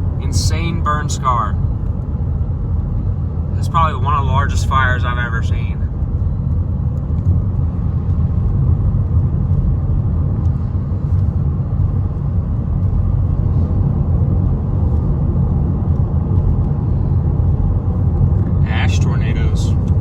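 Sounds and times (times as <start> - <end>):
road and engine rumble in car: 0.0 - 20.0.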